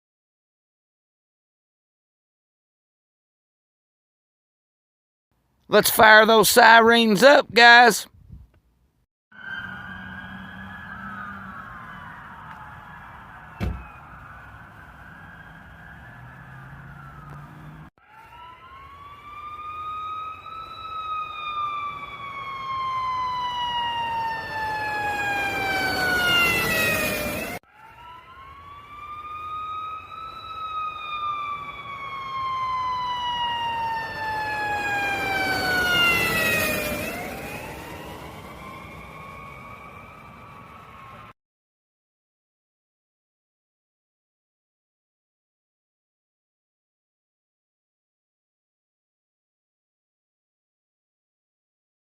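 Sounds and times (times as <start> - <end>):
emergency siren wailing: 9.3 - 41.4.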